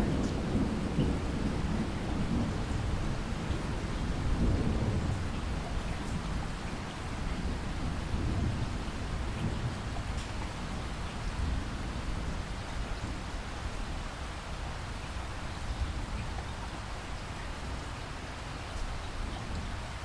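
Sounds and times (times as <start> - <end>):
low thunder rumble: 0.0 - 13.3
rain falling: 0.0 - 20.0.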